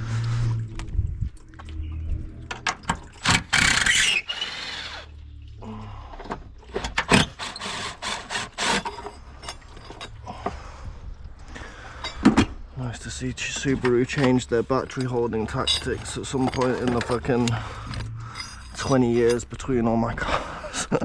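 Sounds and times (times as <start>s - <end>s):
hand tools and metal parts clattering: 2.4s - 4.8s, 6.2s - 10.6s, 11.6s - 21.0s.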